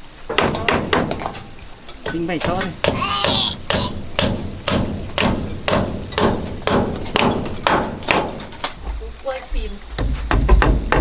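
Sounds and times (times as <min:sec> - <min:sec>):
hammer striking wood: 0:00.3 - 0:01.4, 0:02.0 - 0:08.6, 0:10.0 - 0:11.0.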